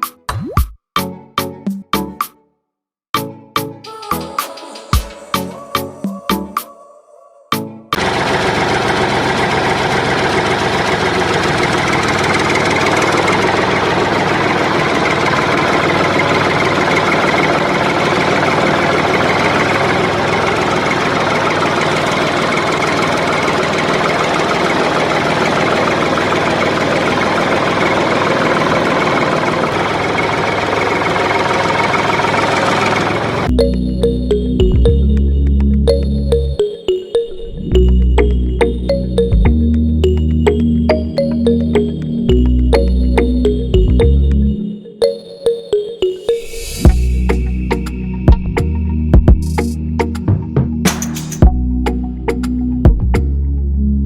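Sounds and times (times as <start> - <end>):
small motor running: 8.0 - 33.5.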